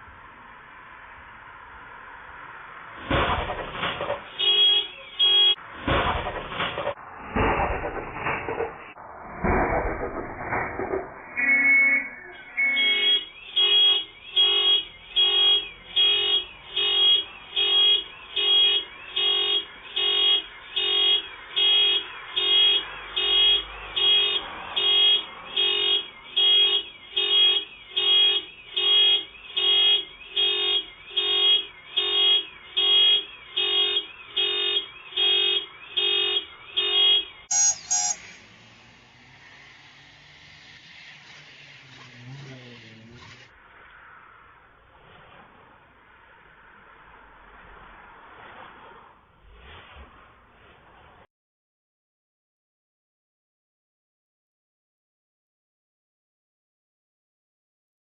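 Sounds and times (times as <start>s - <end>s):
car alarm horn blaring: 4.4s - 5.6s, 11.3s - 38.4s
short high beep: 11.3s - 13.3s, 37.5s - 38.2s.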